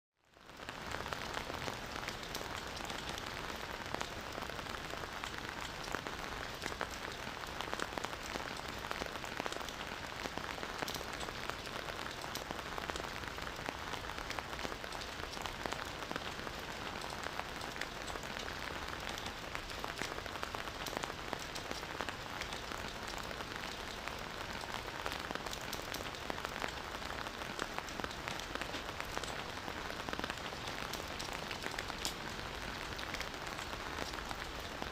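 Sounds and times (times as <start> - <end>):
rain falling on a forest: 0.2 - 34.9.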